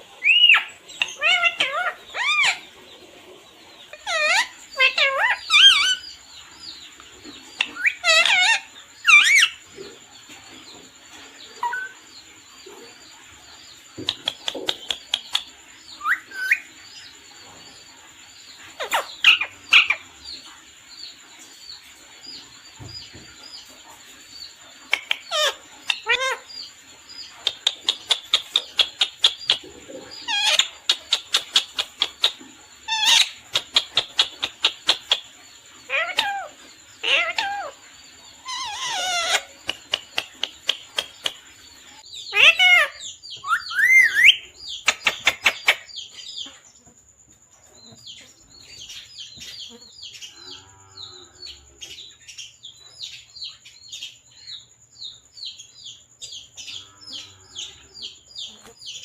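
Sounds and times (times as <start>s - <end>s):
parrot calling shrilly: 0.2s - 2.6s, 3.9s - 6.0s, 7.8s - 9.5s, 25.3s - 26.5s, 30.3s - 30.7s, 35.9s - 37.8s, 38.4s - 39.5s, 42.3s - 44.4s.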